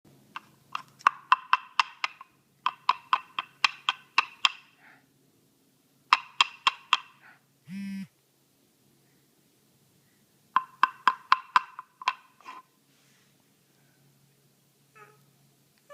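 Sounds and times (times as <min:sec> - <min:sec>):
short buzzing tone: 0:07.7 - 0:08.1.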